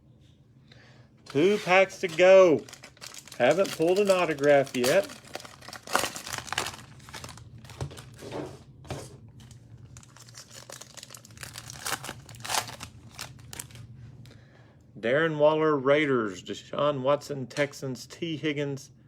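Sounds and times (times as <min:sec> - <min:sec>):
cellophane wrapper tearing and crinkling: 0:01.3 - 0:08.2, 0:09.4 - 0:13.9.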